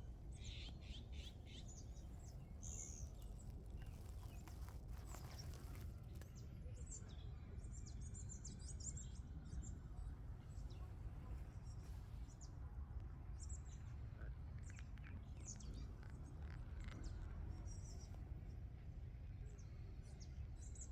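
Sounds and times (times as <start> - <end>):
small birds chirping: 0.0 - 6.2.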